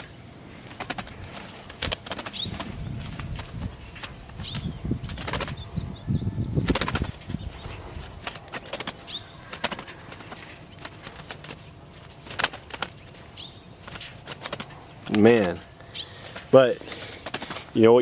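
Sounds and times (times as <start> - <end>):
bird wings fluttering: 0.0 - 5.8, 6.6 - 17.8.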